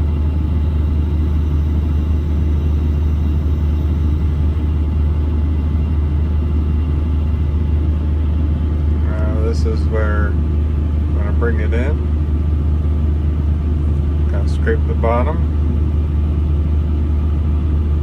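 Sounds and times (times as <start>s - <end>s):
diesel engine drone: 0.0s - 18.0s.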